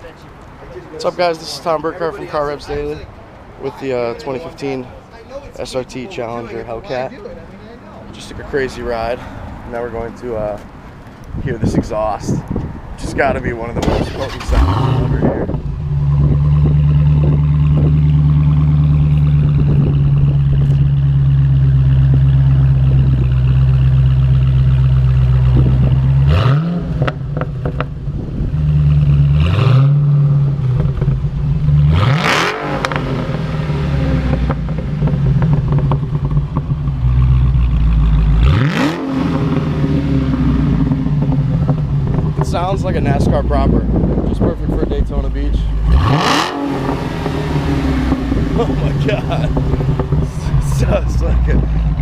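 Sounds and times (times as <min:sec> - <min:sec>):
car engine revving: 0:12.5 - 0:52.0.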